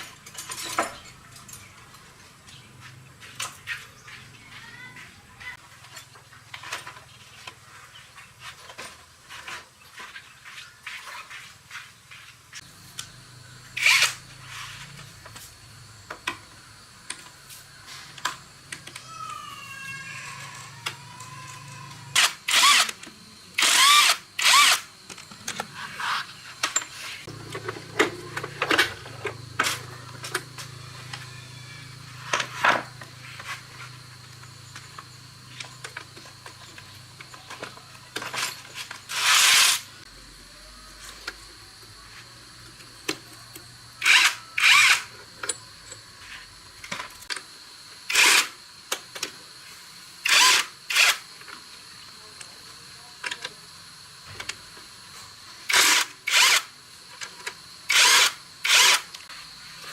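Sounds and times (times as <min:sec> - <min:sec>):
power drill bursts: 0:13.8 - 0:14.2, 0:21.4 - 0:23.0, 0:23.6 - 0:24.9, 0:38.4 - 0:40.0, 0:44.0 - 0:45.1, 0:48.1 - 0:48.6, 0:50.2 - 0:51.3, 0:55.6 - 0:56.8, 0:57.9 - 0:59.2.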